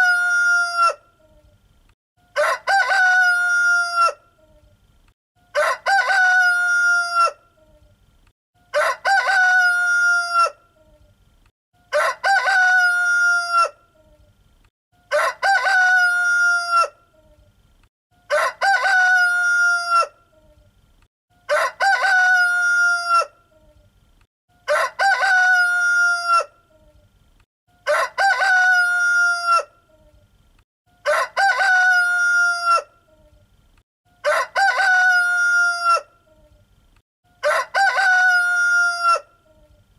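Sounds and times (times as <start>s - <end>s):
rooster crowing: 0.0s - 1.0s, 2.3s - 4.2s, 5.5s - 7.4s, 8.7s - 10.6s, 11.9s - 13.8s, 15.1s - 17.0s, 18.3s - 20.2s, 21.4s - 23.4s, 24.6s - 26.5s, 27.8s - 29.7s, 31.0s - 33.0s, 34.2s - 36.1s, 37.3s - 39.4s.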